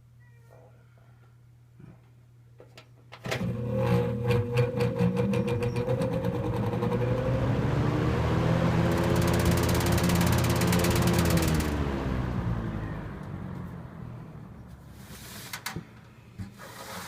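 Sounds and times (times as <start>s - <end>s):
fan motor humming: 3.2s - 16.1s
fan blade ticking: 4.0s - 13.4s.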